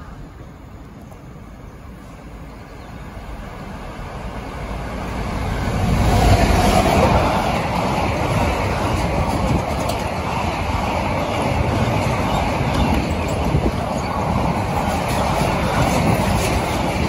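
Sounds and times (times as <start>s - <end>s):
locomotive passing: 0.0s - 17.0s
wagons running on rails: 5.8s - 17.0s.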